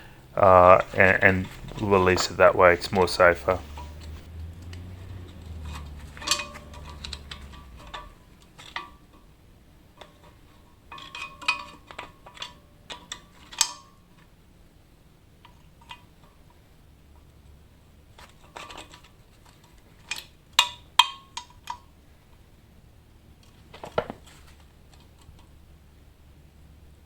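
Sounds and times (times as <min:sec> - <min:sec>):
steel tools clanking on metal: 0:05.6 - 0:09.0, 0:10.9 - 0:14.0.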